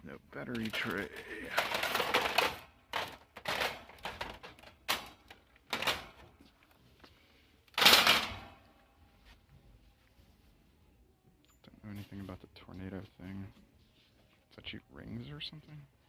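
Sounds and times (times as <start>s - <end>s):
plastic toys clattering: 0.4s - 6.3s, 7.7s - 8.5s.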